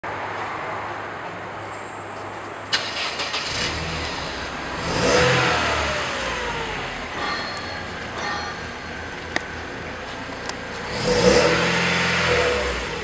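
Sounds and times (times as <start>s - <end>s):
car engine revving: 2.7s - 13.0s.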